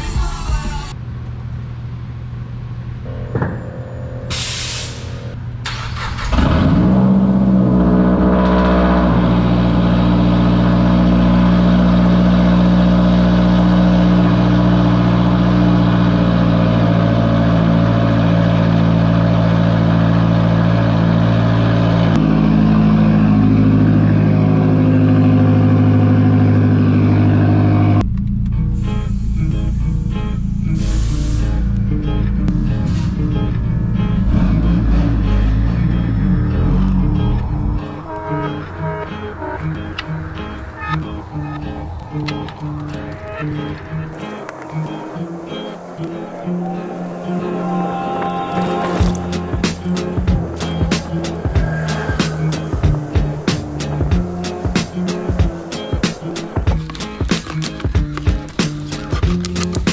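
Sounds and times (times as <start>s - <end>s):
car engine starting and idling: 1.1s - 22.2s, 44.1s - 56.9s.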